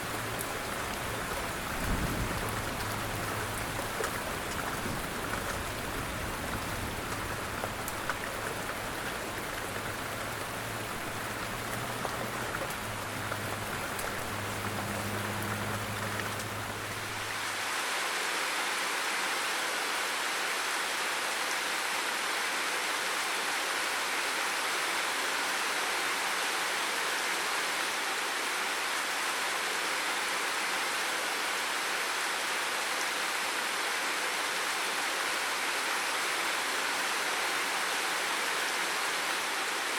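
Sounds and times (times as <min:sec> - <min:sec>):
water patter: 0:00.0 - 0:17.4
rushing water: 0:00.0 - 0:39.9.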